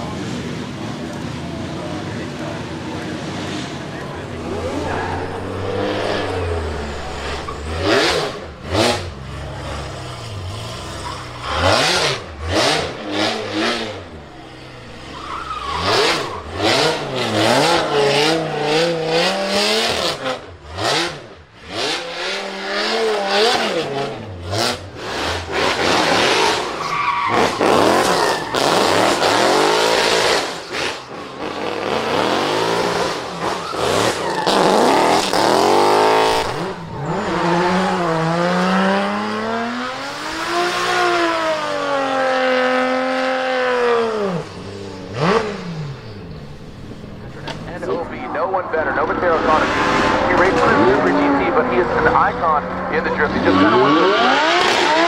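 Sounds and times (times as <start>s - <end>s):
car engine revving: 0.0s - 55.0s
tyres squealing: 3.8s - 18.6s, 25.1s - 30.2s, 33.3s - 38.9s.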